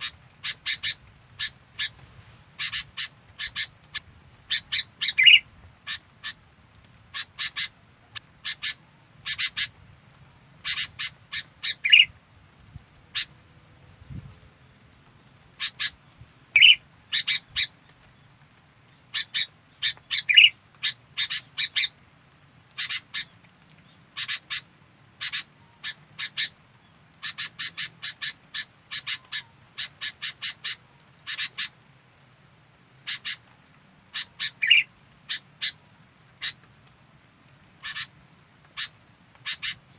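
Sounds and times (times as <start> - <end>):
bird chirping: 2.6 - 6.4, 10.6 - 12.1, 15.6 - 18.2, 18.9 - 21.9, 25.2 - 31.8, 34.1 - 35.8, 37.8 - 39.9.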